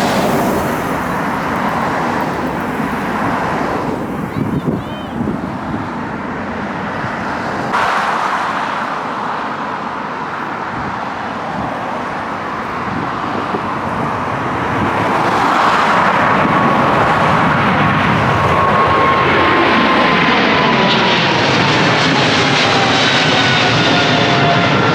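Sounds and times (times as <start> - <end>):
high jet engine whine: 0.0 - 24.9
jet airliner rumble: 0.0 - 24.9.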